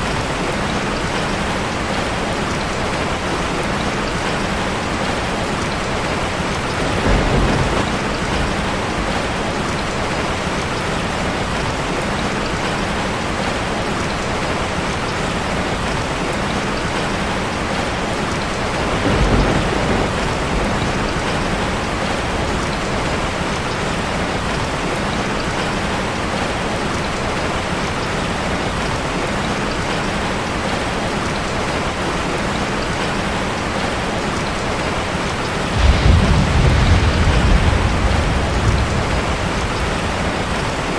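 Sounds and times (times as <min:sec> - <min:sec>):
rain drumming on a metal roof: 0:00.0 - 0:40.9
low rumbles: 0:35.7 - 0:40.9.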